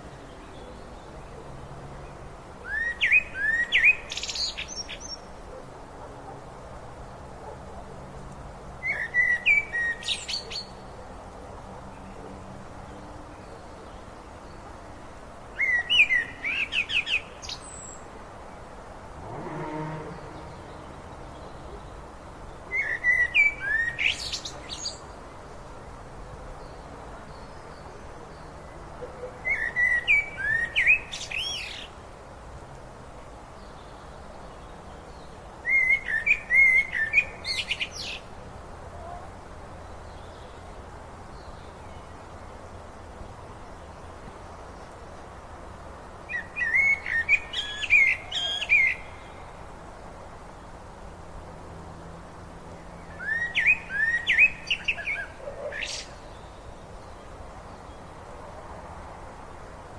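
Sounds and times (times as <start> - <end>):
songbird whistling and trilling: 2.7 - 4.5, 46.3 - 49.1, 53.2 - 55.3.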